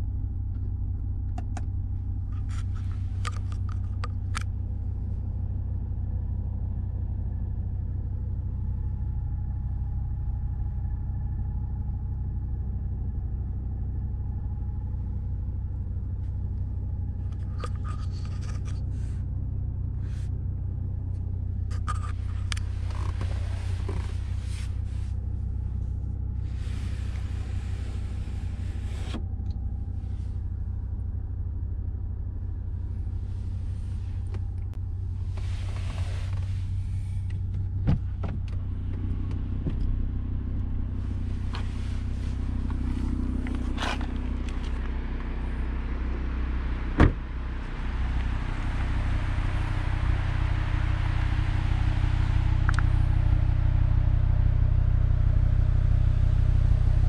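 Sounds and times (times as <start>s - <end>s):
car engine idling: 0.0s - 57.0s
handling clicks and scrapes: 2.3s - 4.5s, 17.2s - 19.2s, 21.5s - 25.2s, 41.0s - 45.0s.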